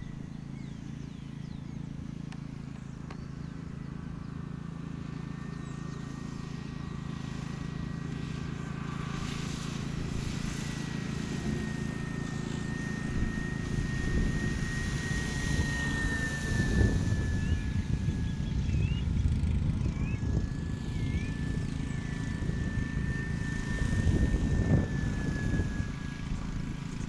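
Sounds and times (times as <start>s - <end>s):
model plane motor whining: 0.0s - 27.0s
wind rumbling on microphone: 9.0s - 27.0s.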